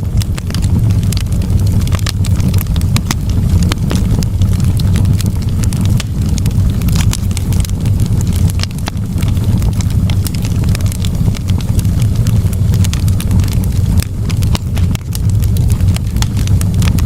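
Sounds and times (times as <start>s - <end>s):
fire crackling and popping: 0.0s - 17.0s
low rumble of burning: 0.0s - 17.0s.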